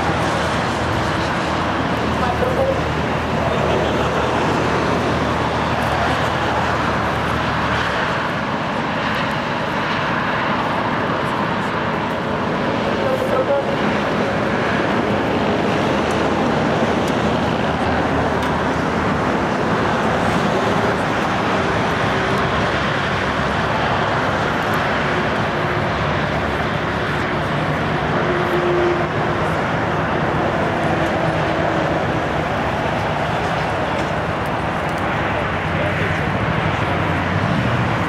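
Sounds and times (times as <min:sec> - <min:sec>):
road noise: 0:00.0 - 0:38.0
vehicle engines rumbling: 0:00.0 - 0:38.0
voices: 0:01.8 - 0:08.0, 0:10.8 - 0:22.9, 0:26.5 - 0:38.0.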